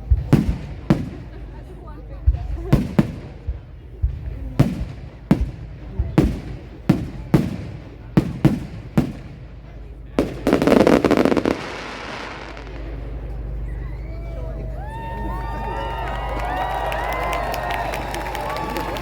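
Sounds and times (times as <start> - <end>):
fireworks bangs: 0.0 - 14.4
fireworks crackling pops: 2.4 - 13.5.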